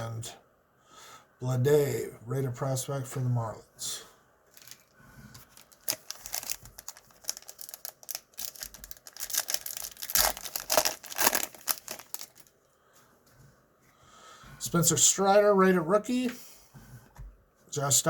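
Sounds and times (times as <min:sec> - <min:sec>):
wrapper crinkling and tearing: 0:04.5 - 0:12.5.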